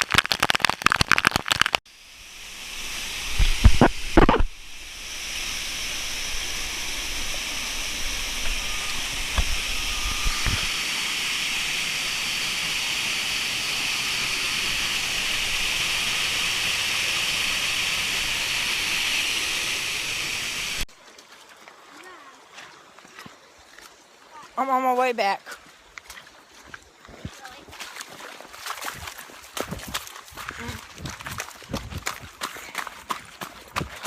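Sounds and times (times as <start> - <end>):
waterfall rushing: 2.8 - 20.8.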